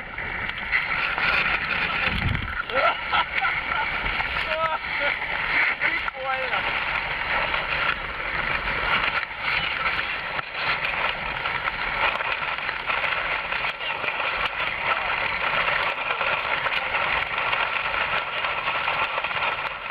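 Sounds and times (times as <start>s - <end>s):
strong wind: 0.0s - 19.9s
water rushing: 0.0s - 19.9s.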